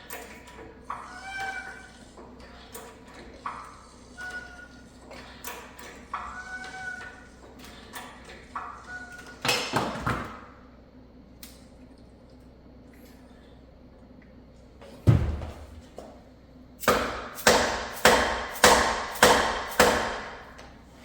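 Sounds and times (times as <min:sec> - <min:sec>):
engine hoist squeaking: 0:00.8 - 0:09.5.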